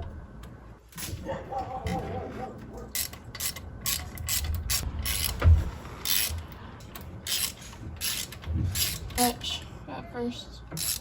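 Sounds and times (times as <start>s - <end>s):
ratchet wrench clicking: 2.9s - 5.4s, 6.0s - 9.2s, 10.8s - 11.0s.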